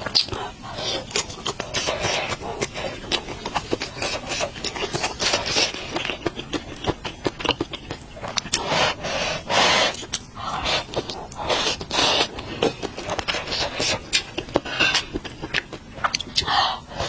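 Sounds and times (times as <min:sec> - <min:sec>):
mouth clicks: 0:00.0 - 0:09.0
noodle slurping: 0:00.0 - 0:17.0
wet chewing: 0:00.0 - 0:17.0.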